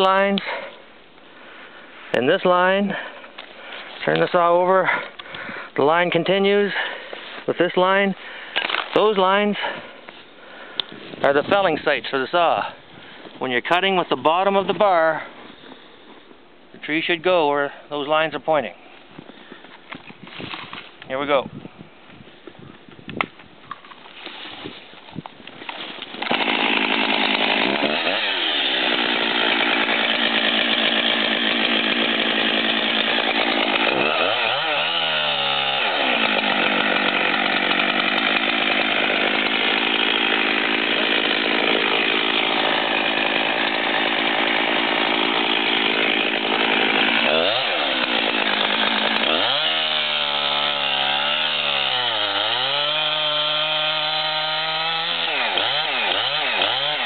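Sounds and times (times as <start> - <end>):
chainsaw cutting at full throttle: 25.7 - 57.0.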